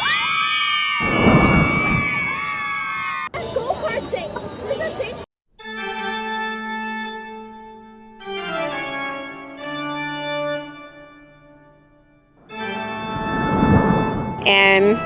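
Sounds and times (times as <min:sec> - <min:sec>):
organ chords: 0:05.8 - 0:15.0.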